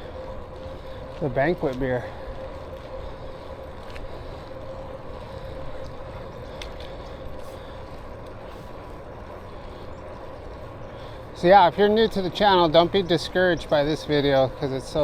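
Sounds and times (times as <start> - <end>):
electric bike motor whine: 0.0 - 15.0
light clicks: 5.8 - 7.2.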